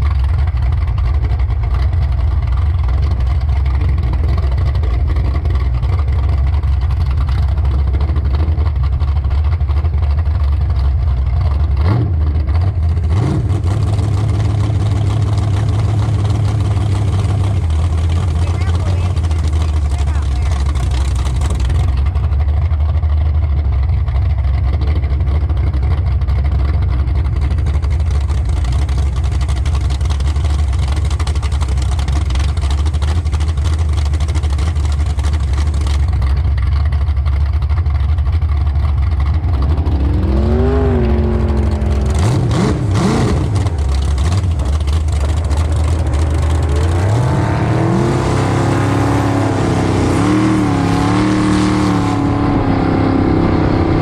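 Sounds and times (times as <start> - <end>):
motor engine droning and revving: 11.4 - 22.2, 38.8 - 54.0.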